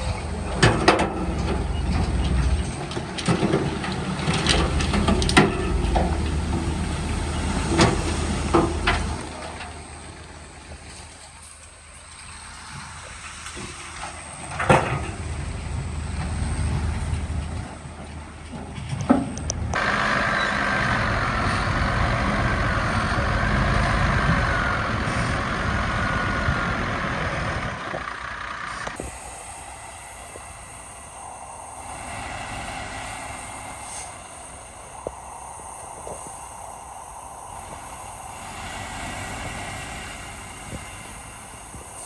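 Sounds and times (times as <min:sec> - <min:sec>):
heavy machinery engine rumble: 0:00.0 - 0:42.0
wavering high whine: 0:19.8 - 0:27.2, 0:28.9 - 0:42.0.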